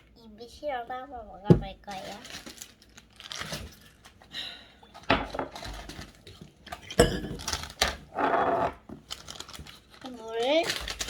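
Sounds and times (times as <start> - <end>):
tableware clinking: 6.8 - 8.7.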